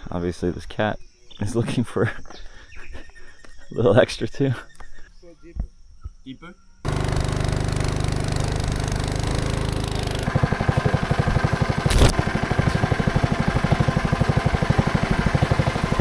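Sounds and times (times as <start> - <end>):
small engine running: 6.9 - 16.0.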